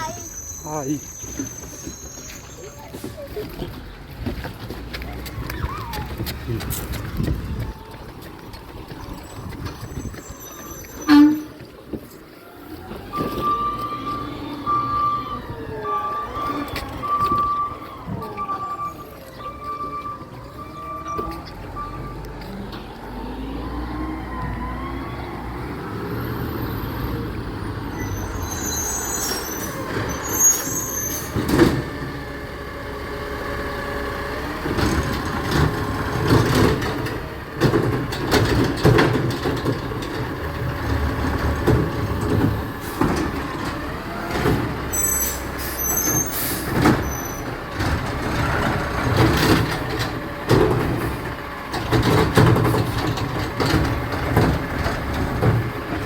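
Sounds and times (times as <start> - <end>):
short high squeals: 0.0 - 3.0, 9.2 - 11.6, 27.9 - 31.4, 44.9 - 47.6
garbage truck engine running: 0.0 - 56.0
clanks and knocks: 34.7 - 44.8, 47.7 - 56.0.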